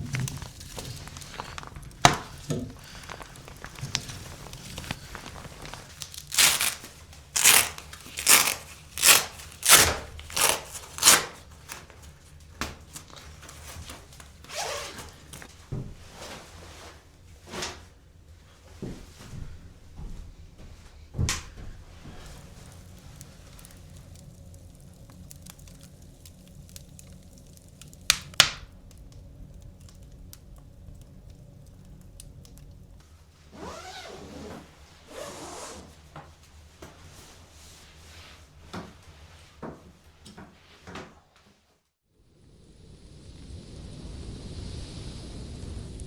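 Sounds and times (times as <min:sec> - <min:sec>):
rustling: 0:00.0 - 0:17.9
low steady hum: 0:00.0 - 0:39.4.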